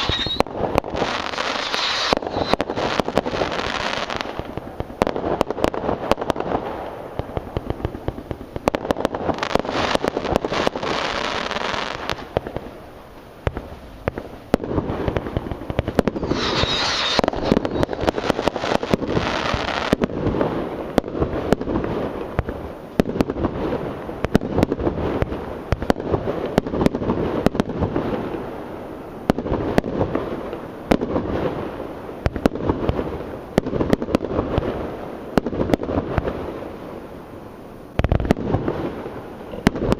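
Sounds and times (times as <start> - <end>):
fireworks hissing: 0.0 - 28.5
fireworks bangs and bursts: 0.0 - 39.9.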